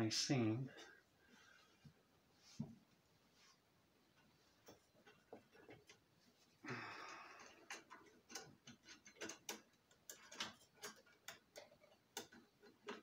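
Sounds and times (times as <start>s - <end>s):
metal parts and tools clicking: 7.1s - 13.0s.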